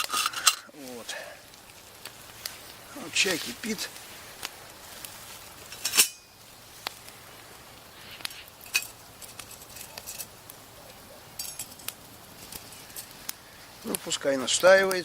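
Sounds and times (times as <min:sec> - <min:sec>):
faint steady hiss: 0:00.0 - 0:15.0
metal cookware clinking: 0:05.8 - 0:06.3, 0:11.4 - 0:11.9.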